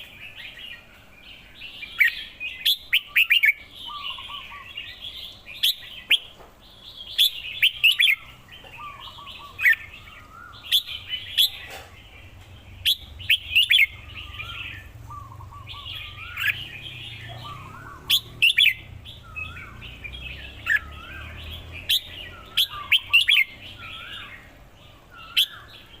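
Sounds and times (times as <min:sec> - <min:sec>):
bird singing sharp phrases: 0:00.0 - 0:26.0
steady twittering: 0:07.0 - 0:26.0.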